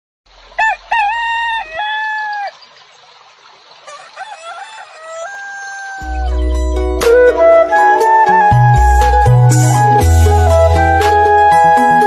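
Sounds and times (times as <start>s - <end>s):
rooster crowing: 0.6s - 2.6s, 3.9s - 6.4s.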